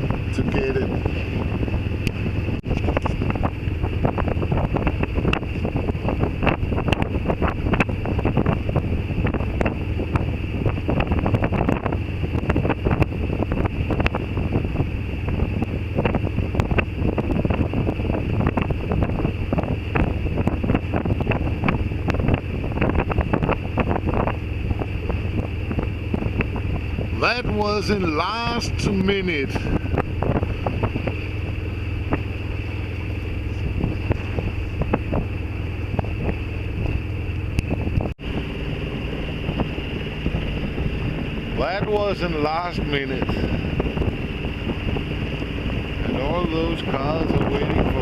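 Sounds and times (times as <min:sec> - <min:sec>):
wind buffeting microphone: 0:00.0 - 0:48.0
diesel engine running hard: 0:26.6 - 0:48.0.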